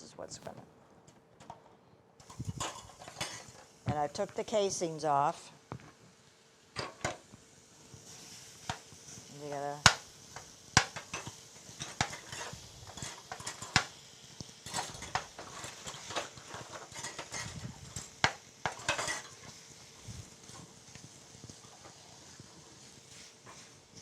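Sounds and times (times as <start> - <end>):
utensil scraping frying pan: 2.2 - 3.8, 8.0 - 14.0, 14.6 - 24.0.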